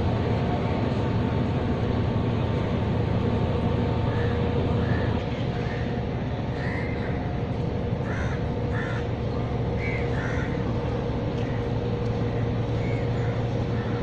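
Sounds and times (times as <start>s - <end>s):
steady low rumble: 0.0s - 14.0s
crows cawing: 4.1s - 5.9s, 6.6s - 7.1s, 8.0s - 9.1s, 9.8s - 10.6s, 12.8s - 14.0s.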